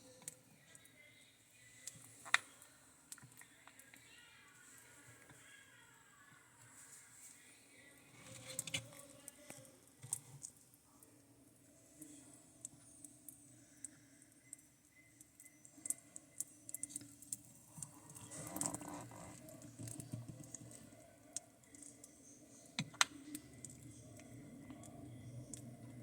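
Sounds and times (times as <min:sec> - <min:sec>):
tortoise biting and chewing: 0:16.7 - 0:21.0.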